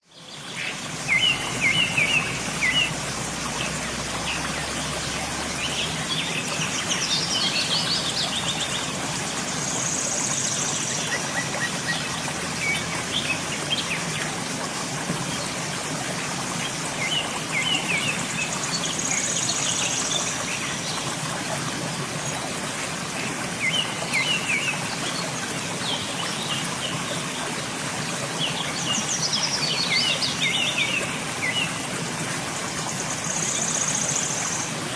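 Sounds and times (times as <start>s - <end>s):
birds chirping: 0.2s - 14.1s
waterfall rushing: 0.2s - 34.9s.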